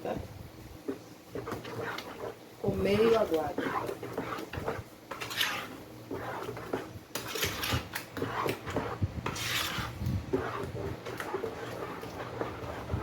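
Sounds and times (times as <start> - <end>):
spoon scraping batter in bowl: 0.8 - 13.0.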